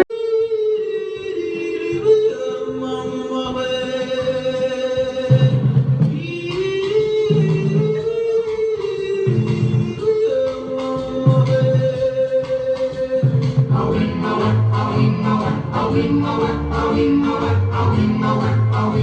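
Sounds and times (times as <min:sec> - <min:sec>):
dance music melody: 0:03.4 - 0:19.0
low bass notes: 0:13.2 - 0:19.0.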